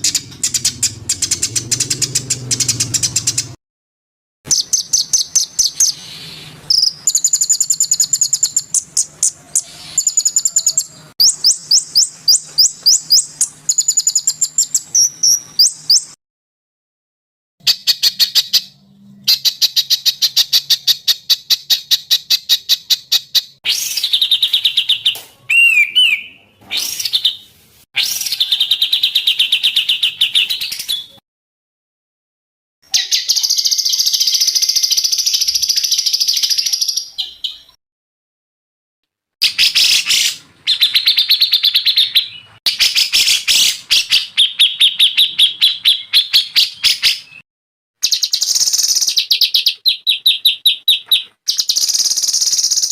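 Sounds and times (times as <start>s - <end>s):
songbird trilling: 4.5s - 16.2s.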